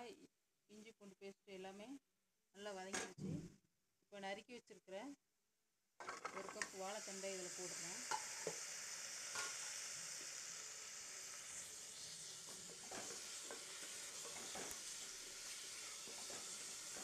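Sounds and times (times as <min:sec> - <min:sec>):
food sizzling in hot oil: 0:06.0 - 0:17.0.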